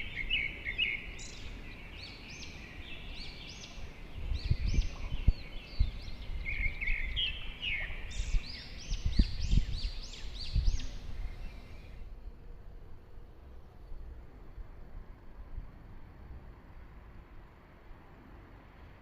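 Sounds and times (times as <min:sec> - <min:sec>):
songbirds singing: 0:00.0 - 0:14.4.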